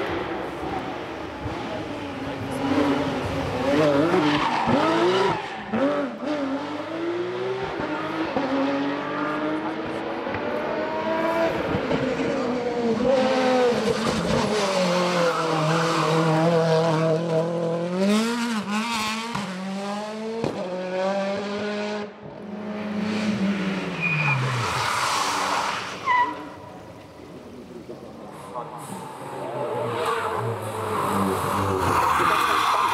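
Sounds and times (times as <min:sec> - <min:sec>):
race car engine at high revs: 0:00.0 - 0:26.0
tire squeal: 0:03.8 - 0:06.0, 0:23.9 - 0:26.7, 0:28.3 - 0:32.9.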